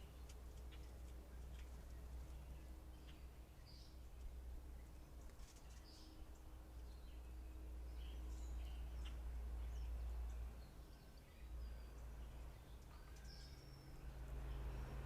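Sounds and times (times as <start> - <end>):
faint bird chirps: 4.7 - 15.0.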